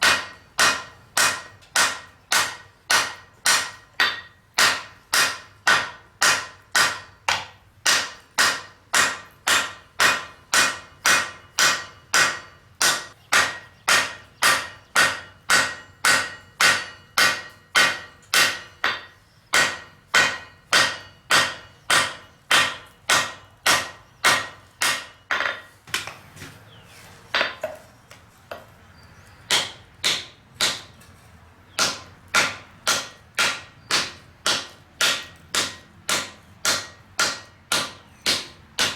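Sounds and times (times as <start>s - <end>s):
hammer striking anvil: 0.0s - 25.7s, 31.8s - 38.9s.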